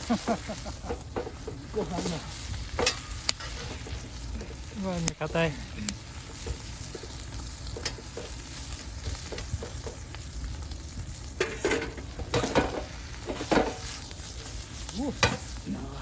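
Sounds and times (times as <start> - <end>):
rice sizzling in a frying pan: 0.0 - 16.0
spatula scraping a pan: 0.5 - 4.7, 5.6 - 10.6, 11.2 - 15.6.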